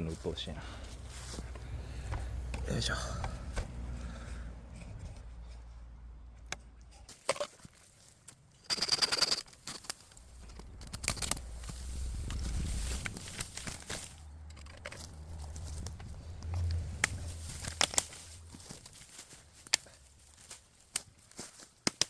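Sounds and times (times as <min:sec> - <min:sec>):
bamboo leaves rustling: 0:00.0 - 0:05.9, 0:06.9 - 0:22.0
bamboo snapping: 0:09.1 - 0:22.0.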